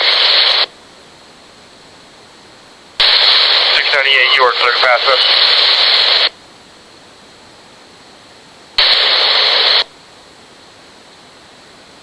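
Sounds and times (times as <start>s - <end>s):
burst of loud static: 0.0s - 0.7s, 3.0s - 6.4s, 8.8s - 10.0s
scanner faint hiss: 0.0s - 12.0s.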